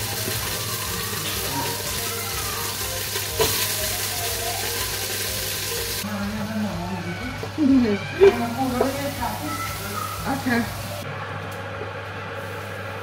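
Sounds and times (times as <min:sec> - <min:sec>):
food frying in hot oil: 0:00.0 - 0:06.1.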